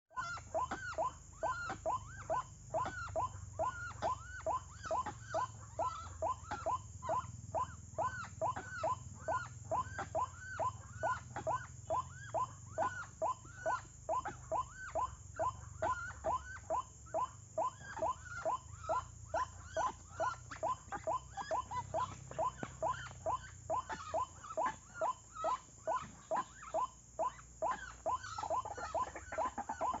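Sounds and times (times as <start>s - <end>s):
waterhen calling: 27.7s - 30.0s.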